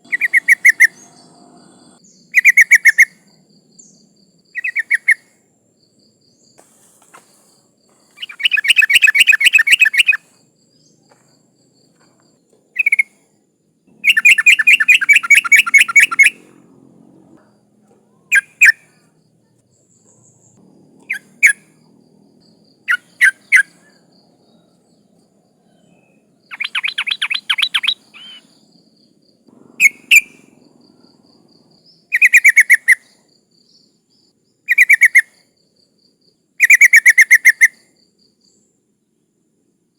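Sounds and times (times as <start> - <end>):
bird bubbling chatter: 0.0 - 3.0, 14.0 - 16.4, 26.5 - 28.5
bird call notes: 8.2 - 10.3, 13.9 - 16.6, 26.5 - 28.5, 29.7 - 30.6.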